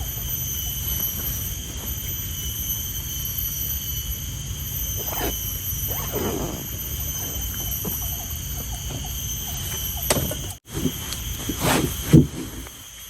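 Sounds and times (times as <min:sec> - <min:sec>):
insects droning: 0:00.0 - 0:13.0
rising and falling animal calls: 0:05.0 - 0:09.1.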